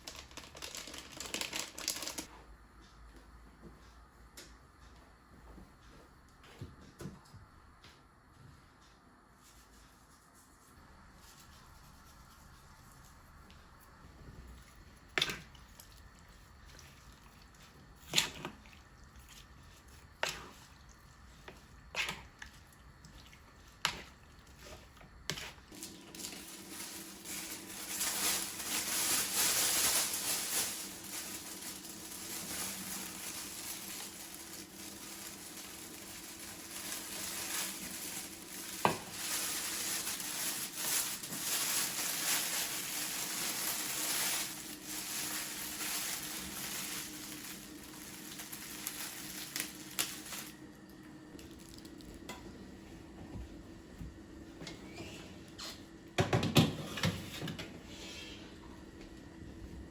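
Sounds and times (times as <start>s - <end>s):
steady hiss with low hum: 0.0s - 59.9s.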